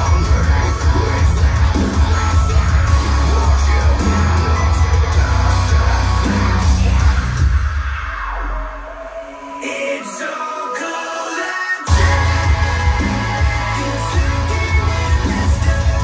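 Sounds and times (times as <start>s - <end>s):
music with singing over loudspeakers: 0.0s - 16.0s.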